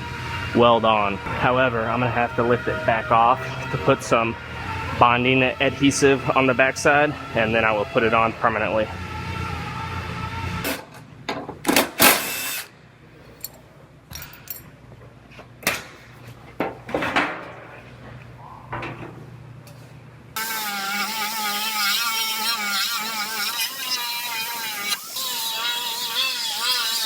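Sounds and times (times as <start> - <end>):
wavering whine: 0.0 - 10.6
power drill bursts: 12.0 - 12.7, 20.4 - 27.0.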